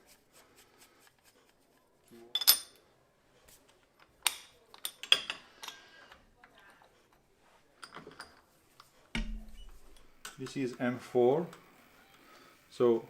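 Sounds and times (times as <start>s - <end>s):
metal parts and tools clinking: 2.3s - 2.8s, 4.0s - 5.8s, 7.8s - 10.5s.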